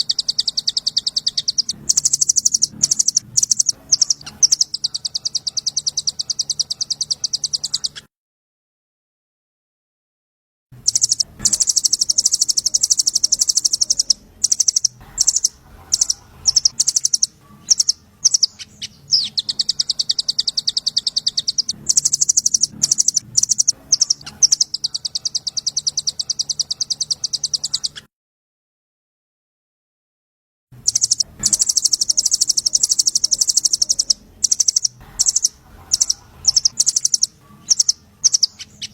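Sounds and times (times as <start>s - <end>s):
bird calls: 0.0s - 8.1s, 10.8s - 28.1s, 30.8s - 38.9s
songbird trilling: 0.0s - 8.1s, 10.9s - 28.0s, 30.9s - 38.9s.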